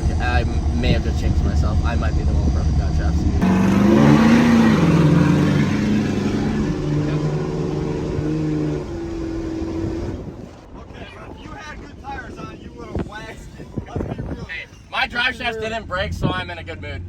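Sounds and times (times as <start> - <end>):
diesel trucks revving hard: 2.4 - 10.5.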